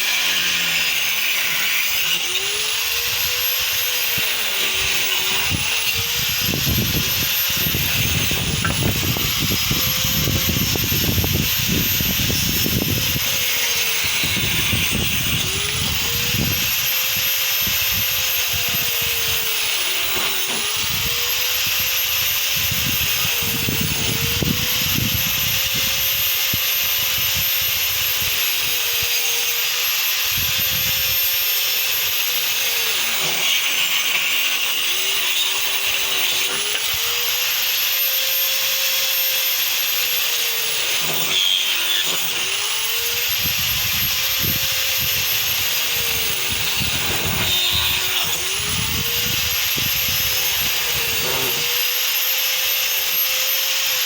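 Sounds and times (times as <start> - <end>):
angle grinder motor whine: 0.0 - 54.0
grinding disc cutting wood: 0.0 - 54.0.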